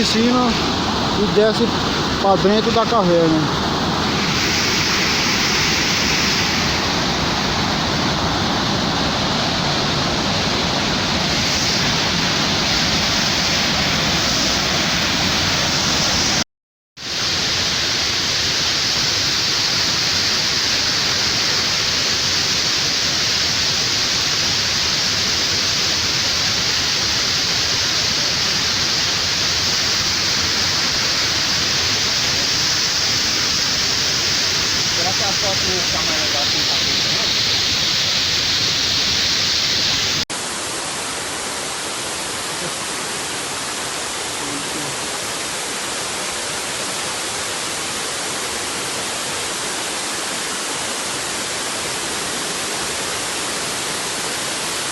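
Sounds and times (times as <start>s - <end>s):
waterfall rushing: 0.0s - 16.4s, 17.0s - 54.9s.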